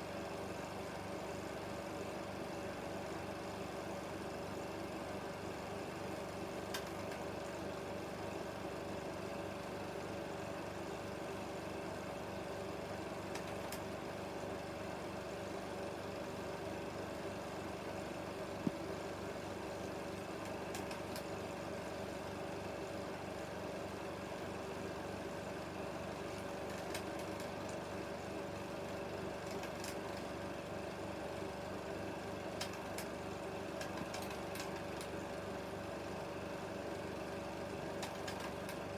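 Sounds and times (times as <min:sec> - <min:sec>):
film projector whirring: 0:00.0 - 0:38.9
projector clicks: 0:20.4 - 0:21.3, 0:32.6 - 0:33.2, 0:33.8 - 0:35.2, 0:38.0 - 0:38.8.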